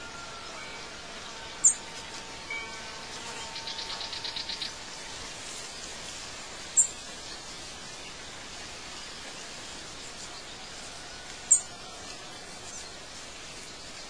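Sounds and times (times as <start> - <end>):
bird trill: 0.0 - 1.9, 2.5 - 5.0
background hiss: 0.0 - 14.0.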